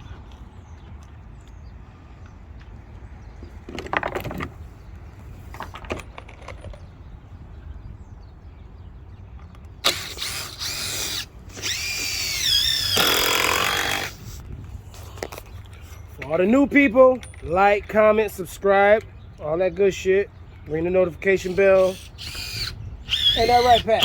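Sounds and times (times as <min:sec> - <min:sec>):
power drill driving screws: 0:09.8 - 0:14.4, 0:21.4 - 0:24.0.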